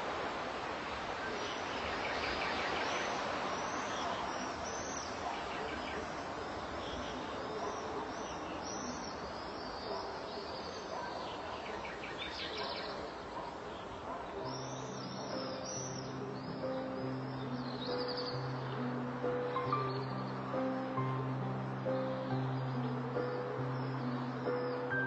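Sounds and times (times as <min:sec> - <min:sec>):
outdoor hiss: 0:00.0 - 0:25.0
songbirds chirping: 0:00.0 - 0:25.0.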